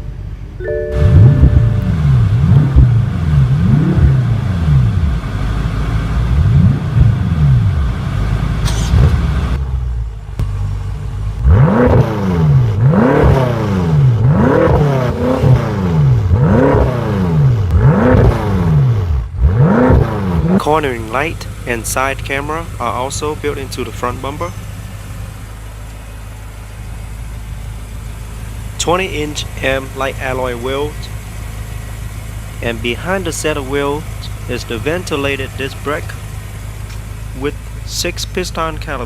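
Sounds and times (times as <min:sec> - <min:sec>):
car engine starting and idling: 0:00.0 - 0:39.0
engine revving in quick blips: 0:00.9 - 0:10.7, 0:11.3 - 0:27.0.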